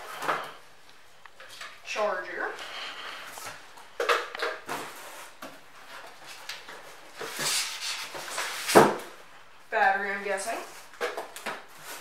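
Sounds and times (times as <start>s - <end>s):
packaging rustling and scraping: 2.5s - 9.2s, 10.6s - 12.0s.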